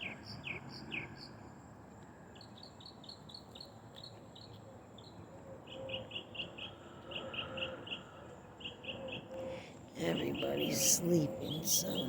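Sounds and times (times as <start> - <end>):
faint outdoor background noise: 0.0 - 12.0
bird chirping: 8.6 - 12.0.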